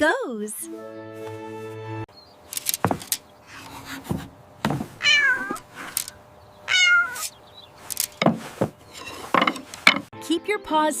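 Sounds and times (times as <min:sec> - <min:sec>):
cat meowing: 0:05.0 - 0:05.6, 0:06.7 - 0:07.3.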